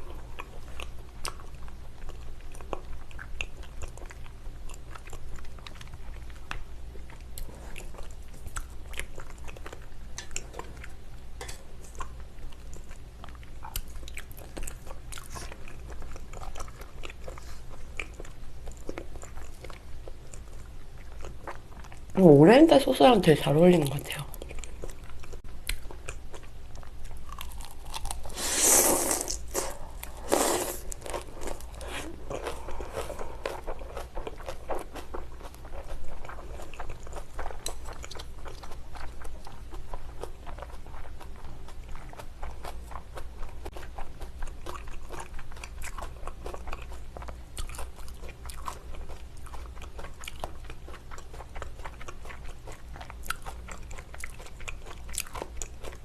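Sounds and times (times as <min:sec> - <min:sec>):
person chewing food: 0:00.0 - 0:22.2, 0:24.4 - 0:56.0
person biting food: 0:28.0 - 0:33.1.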